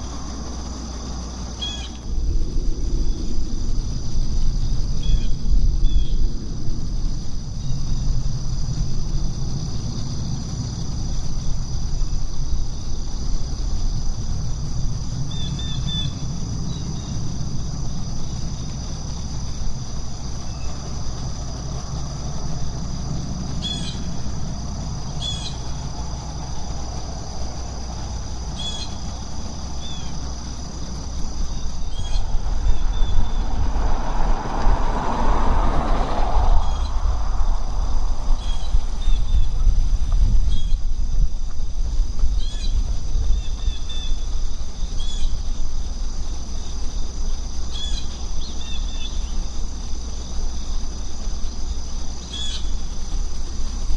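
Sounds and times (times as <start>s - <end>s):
high insect chorus: 0.0s - 53.9s
low rumble: 0.0s - 53.9s
bird chirping: 23.6s - 24.2s, 25.1s - 25.8s, 28.0s - 30.2s.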